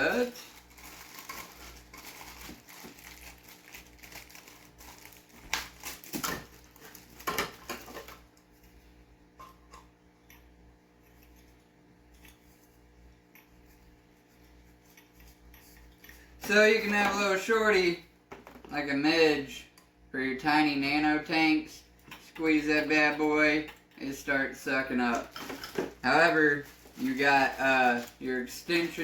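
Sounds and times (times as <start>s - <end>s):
plastic packaging rustling: 0.0s - 8.3s, 25.0s - 29.0s
faint steady hum: 0.0s - 29.0s.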